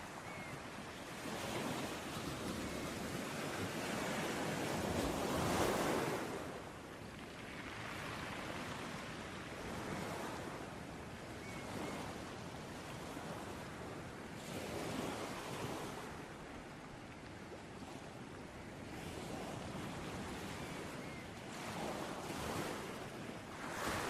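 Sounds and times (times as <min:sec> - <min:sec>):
ocean waves breaking: 0:00.0 - 0:24.0.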